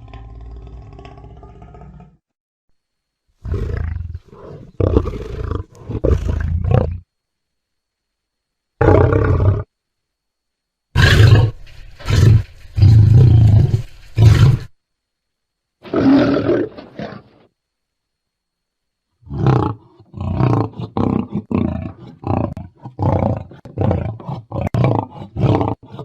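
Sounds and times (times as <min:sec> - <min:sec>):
lion roaring: 0:00.0 - 0:02.2, 0:03.4 - 0:07.0, 0:08.8 - 0:09.7, 0:11.0 - 0:14.7, 0:15.8 - 0:17.5, 0:19.2 - 0:26.0.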